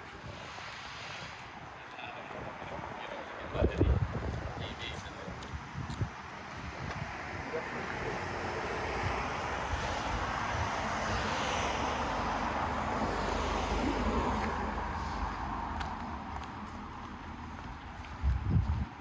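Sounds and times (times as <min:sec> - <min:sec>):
vehicle passing by: 0:06.3 - 0:18.6.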